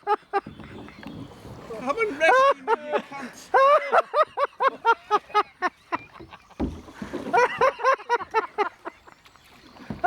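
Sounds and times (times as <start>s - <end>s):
men laughing hard: 0.0s - 0.5s, 2.0s - 9.1s.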